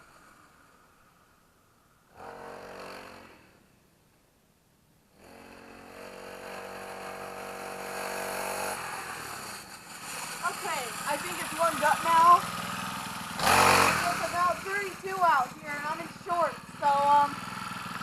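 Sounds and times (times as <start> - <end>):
mini dirt bike engine running: 2.2 - 3.5, 5.2 - 18.0.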